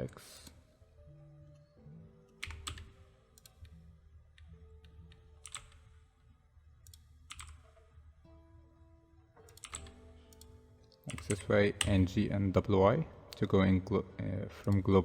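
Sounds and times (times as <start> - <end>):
faint background music: 0.0 - 15.0
keyboard keystrokes: 2.3 - 3.8, 4.4 - 6.0, 6.8 - 7.8, 9.5 - 12.1.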